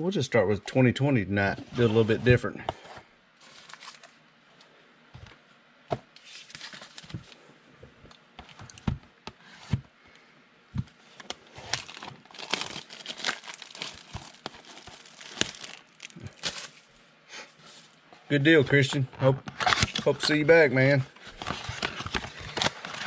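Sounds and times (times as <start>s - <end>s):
foil wrappers crinkling and tearing: 3.4s - 4.2s, 6.2s - 7.4s, 11.2s - 16.9s, 21.2s - 23.0s.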